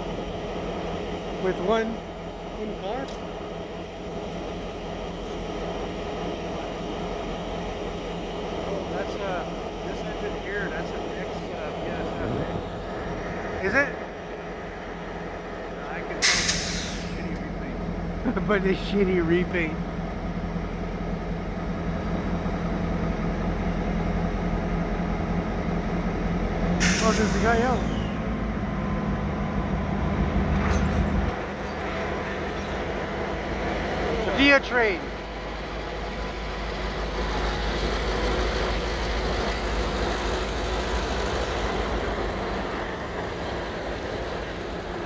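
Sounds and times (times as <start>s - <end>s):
diesel locomotives idling: 0.0s - 45.0s
train wheels rushing on rails: 18.4s - 45.0s.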